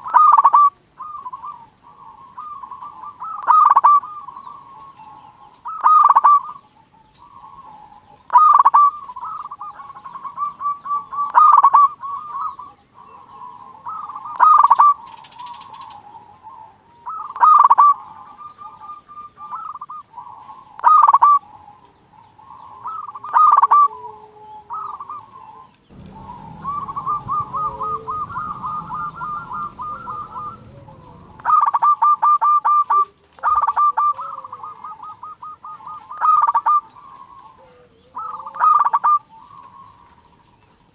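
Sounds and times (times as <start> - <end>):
dove cooing: 0.0 - 40.2
low rumble: 25.9 - 32.2.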